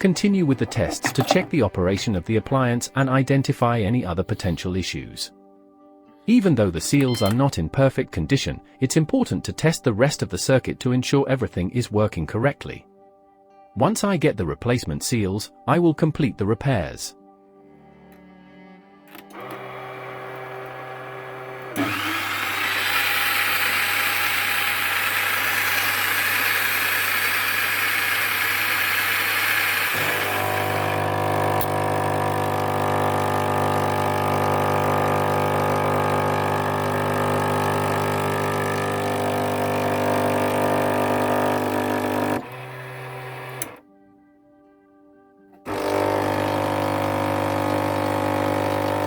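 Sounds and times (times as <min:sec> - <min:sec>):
espresso machine pump humming: 0:19.3 - 0:43.8, 0:45.7 - 0:49.0.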